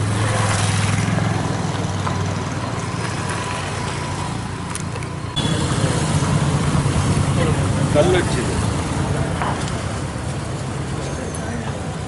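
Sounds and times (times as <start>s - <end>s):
road noise: 0.0s - 12.0s
vehicle engine running: 4.9s - 10.3s.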